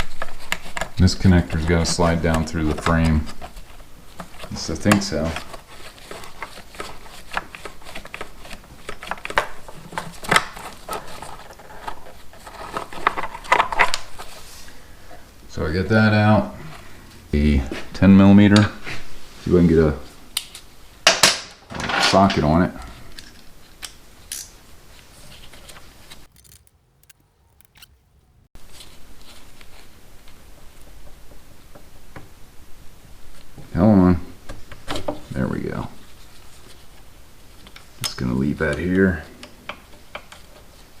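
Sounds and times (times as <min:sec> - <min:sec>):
hands handling wiring clicks: 0:26.3 - 0:28.4.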